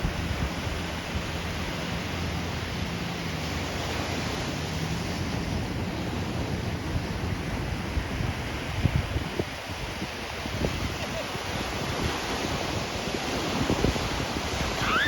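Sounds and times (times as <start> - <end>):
ocean surf rushing: 0.0 - 15.0
wind buffeting microphone: 0.0 - 15.0.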